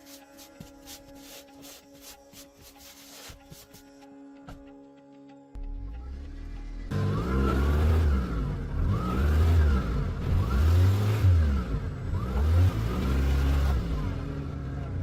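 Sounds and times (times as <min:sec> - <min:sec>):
car engine revving: 0:05.6 - 0:15.0.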